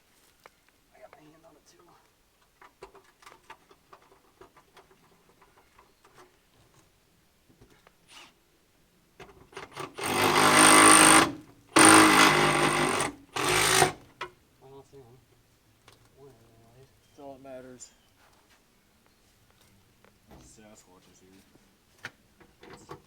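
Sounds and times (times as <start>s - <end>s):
reciprocating saw cutting: 9.6s - 14.0s
faint rustling: 14.9s - 22.7s.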